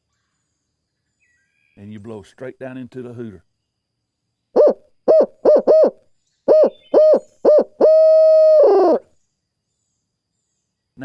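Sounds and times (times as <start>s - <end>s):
hand-blown owl hooter hoots: 4.6s - 9.0s.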